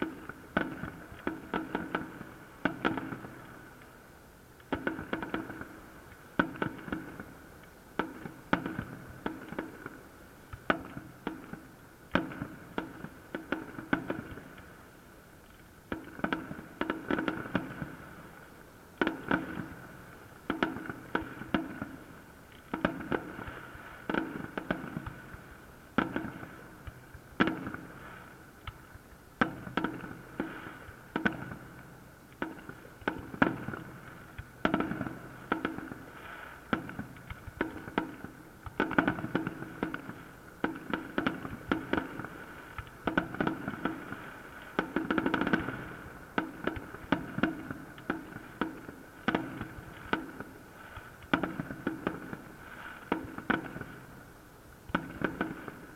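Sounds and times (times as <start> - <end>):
fireworks bangs with echo: 0.0 - 3.4, 19.0 - 54.2, 54.9 - 55.9.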